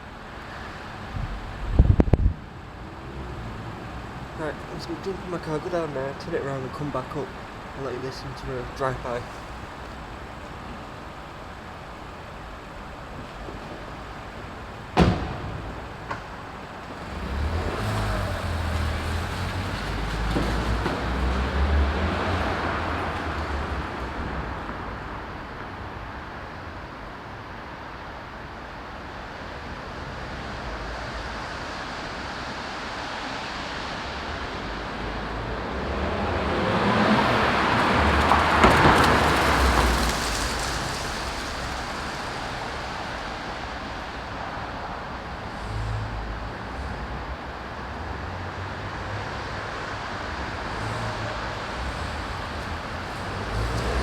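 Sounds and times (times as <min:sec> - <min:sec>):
car driving past: 0:16.9 - 0:24.6, 0:35.1 - 0:44.2, 0:48.2 - 0:54.0.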